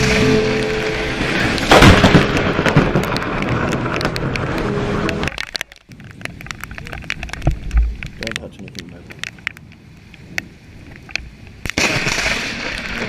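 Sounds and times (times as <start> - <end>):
thunder rumbling: 0.0 - 5.4
loud thunder crack: 1.0 - 4.2.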